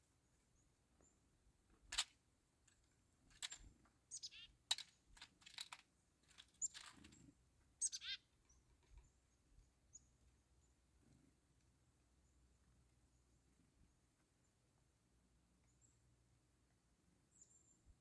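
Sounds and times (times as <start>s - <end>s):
chickadee calls sweeping downward: 4.1s - 4.5s, 7.8s - 8.2s
faint high bird chips: 4.1s - 4.9s, 6.3s - 7.2s, 7.8s - 9.1s.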